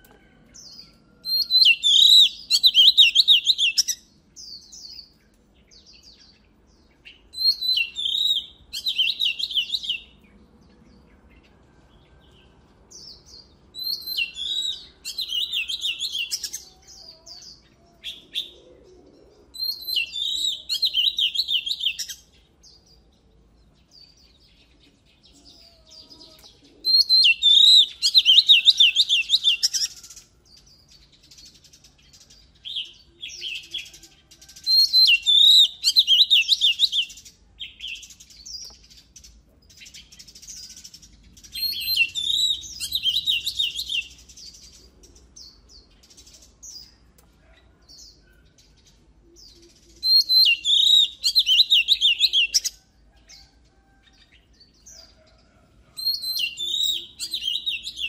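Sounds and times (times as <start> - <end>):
bird singing whistled notes: 1.2 - 10.2, 13.1 - 18.6, 19.5 - 22.8, 24.0 - 30.7, 31.4 - 38.8, 39.8 - 44.7, 49.4 - 52.7, 56.0 - 58.0.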